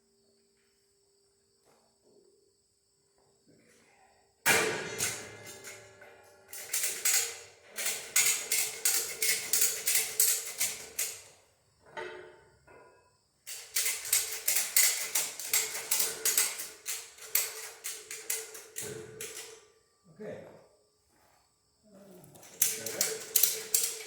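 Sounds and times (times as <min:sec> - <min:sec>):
rapid metallic clacks: 0:04.5 - 0:11.3, 0:13.5 - 0:19.6, 0:22.4 - 0:24.0.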